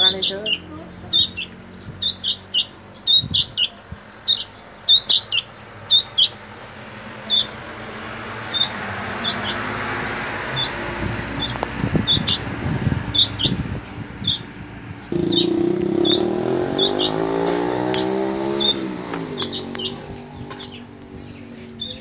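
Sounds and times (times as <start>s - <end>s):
fledgling bird cheeping: 0.0s - 6.4s, 7.3s - 7.6s, 8.5s - 9.6s, 10.6s - 10.8s, 11.4s - 12.5s, 13.1s - 13.6s, 14.2s - 22.0s.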